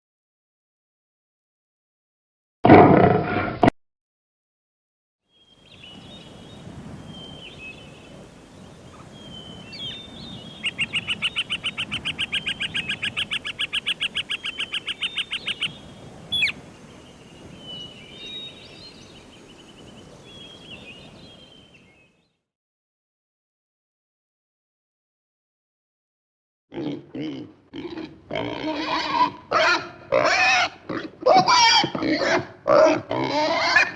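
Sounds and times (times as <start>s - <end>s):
bird chirping: 9.2s - 22.2s
fast even bird trill: 10.5s - 16.6s.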